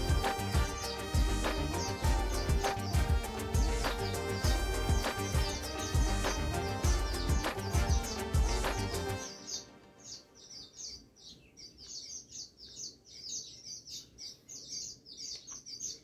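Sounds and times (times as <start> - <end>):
background music: 0.0 - 10.9
small bird chirping: 0.0 - 16.0.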